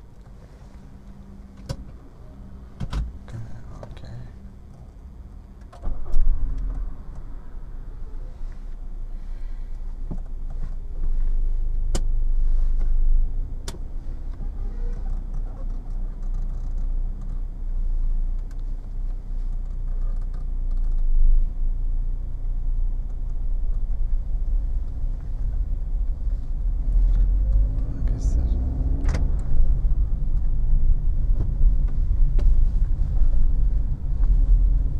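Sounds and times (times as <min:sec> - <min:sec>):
car engine running: 0:00.0 - 0:34.9.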